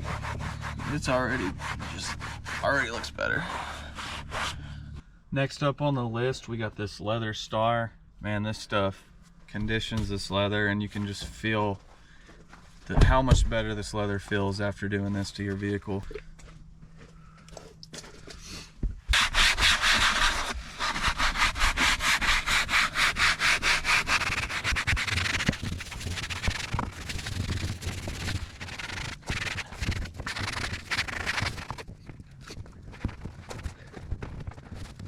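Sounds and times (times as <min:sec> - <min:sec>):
rubbing leather upholstery: 0:00.0 - 0:04.6, 0:19.1 - 0:31.9.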